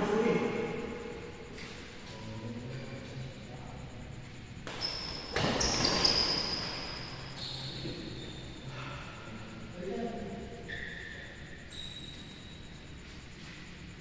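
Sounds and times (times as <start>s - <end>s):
low hall hum: 0.0s - 14.0s
shoes squeaking on court floor: 4.6s - 8.7s, 10.6s - 14.0s.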